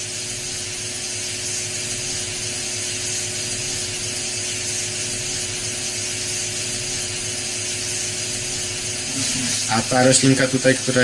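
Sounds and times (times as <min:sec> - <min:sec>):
steady hiss: 0:00.6 - 0:11.0
faint steady hum: 0:01.8 - 0:07.7.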